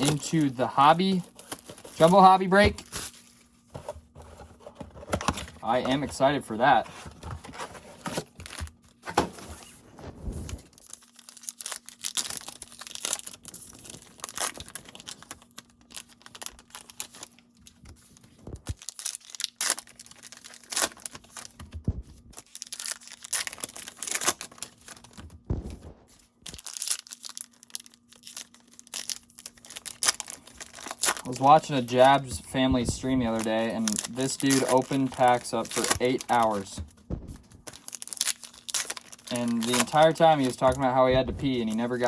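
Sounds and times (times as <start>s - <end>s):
wrappers crinkling and tearing: 0.0s - 3.6s, 10.5s - 21.7s, 22.3s - 25.2s, 26.4s - 36.8s, 37.6s - 42.0s
cards shuffled and handled: 29.9s - 42.0s.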